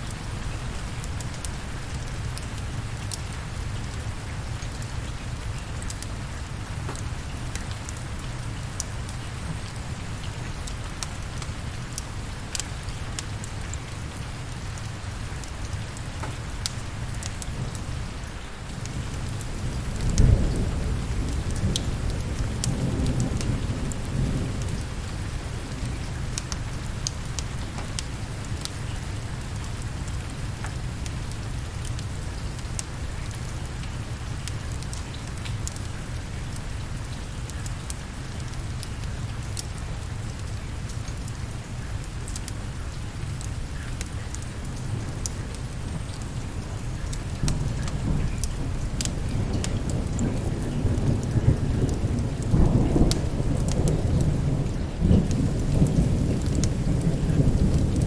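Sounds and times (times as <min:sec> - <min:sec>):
steady rain: 0:00.0 - 0:58.0
thunder rumbling: 0:18.7 - 0:26.2, 0:44.9 - 0:58.0.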